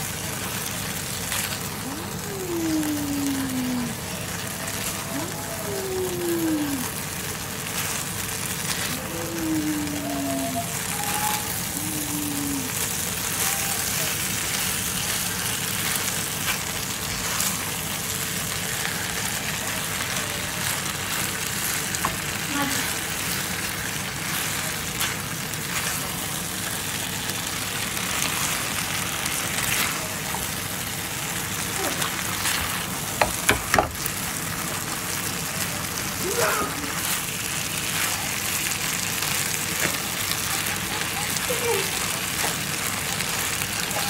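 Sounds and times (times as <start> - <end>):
stir-fry sizzling: 0.0 - 44.0.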